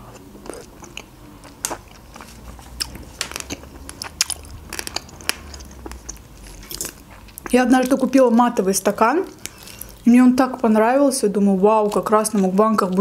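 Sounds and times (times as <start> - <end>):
wet chewing clicks and squelches: 0.4 - 8.0.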